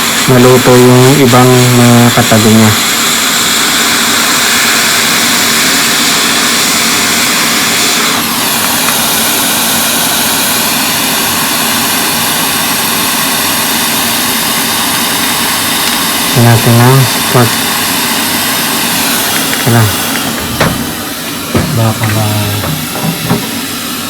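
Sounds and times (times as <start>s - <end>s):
hot air blower hissing: 0.0s - 24.0s
faint fan hum: 14.5s - 24.0s.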